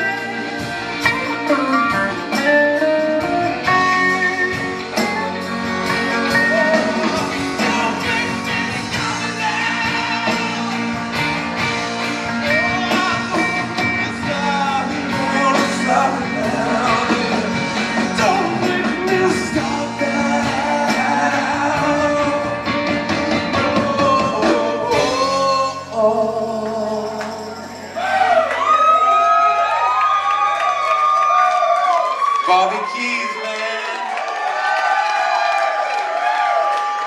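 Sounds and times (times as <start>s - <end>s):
pitch-bending melodic lead line: 0.0s - 28.0s
soul band playing slow ballad: 0.0s - 30.0s.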